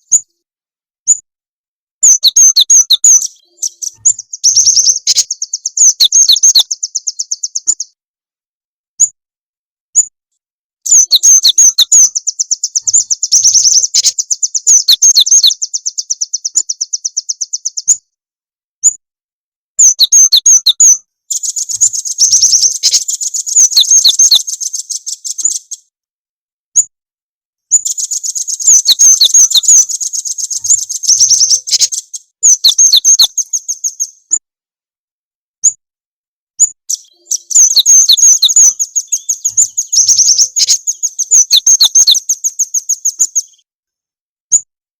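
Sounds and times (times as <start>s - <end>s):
songbird chirping trills: 2.0s - 8.0s, 10.9s - 18.1s, 19.8s - 25.9s, 27.7s - 34.4s, 36.6s - 43.7s.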